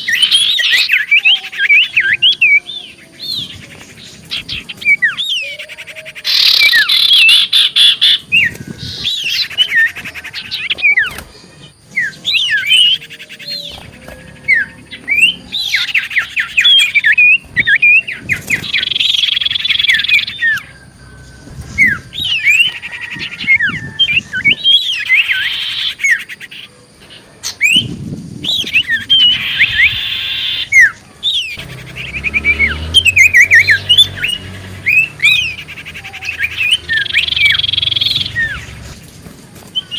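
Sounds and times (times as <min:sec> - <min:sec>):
bird chirps and sweeping whistles: 0:11.8 - 0:26.7, 0:27.4 - 0:39.0.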